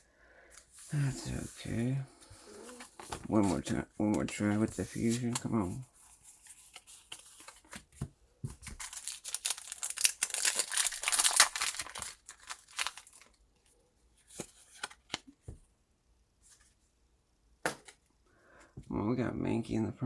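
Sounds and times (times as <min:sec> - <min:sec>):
foil wrapper tearing and crinkling: 0:08.6 - 0:13.4.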